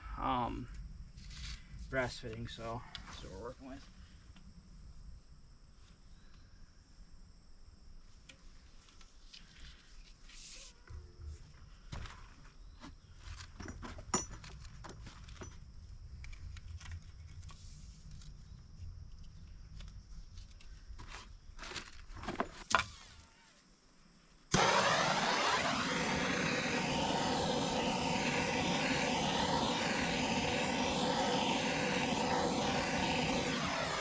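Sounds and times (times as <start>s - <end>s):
loud steady machine noise: 24.5s - 34.0s.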